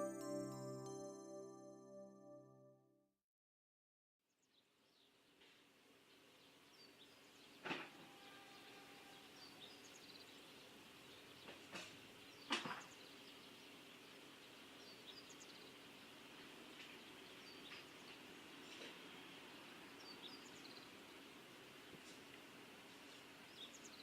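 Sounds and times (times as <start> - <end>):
small birds chirping: 9.4 - 21.2.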